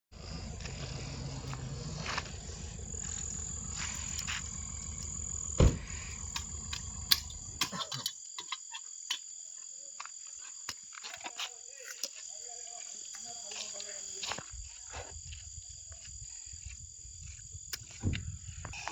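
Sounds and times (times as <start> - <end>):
low rumble: 0.1 - 7.6
crickets chirping: 0.1 - 18.9
loud thump: 1.4 - 7.6.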